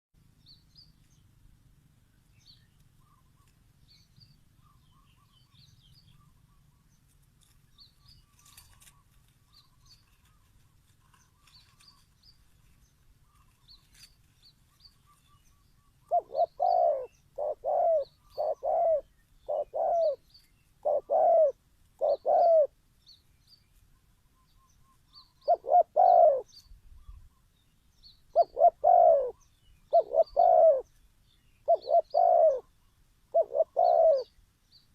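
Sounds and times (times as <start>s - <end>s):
faint high bird chirps: 2.1s - 34.9s
dove cooing: 15.0s - 22.8s, 25.3s - 27.2s, 28.3s - 30.9s, 31.6s - 34.4s.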